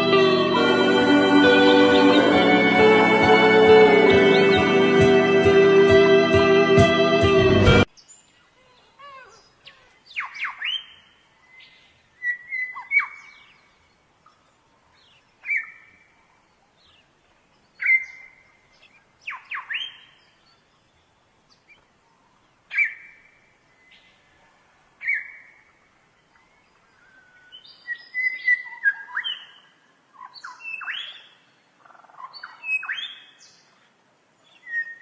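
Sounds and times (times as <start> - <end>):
bird whistling call: 27.9 - 29.4, 34.6 - 35.0.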